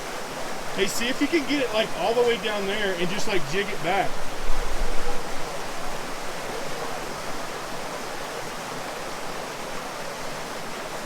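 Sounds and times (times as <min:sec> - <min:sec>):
stream rushing over rocks: 0:00.0 - 0:11.0.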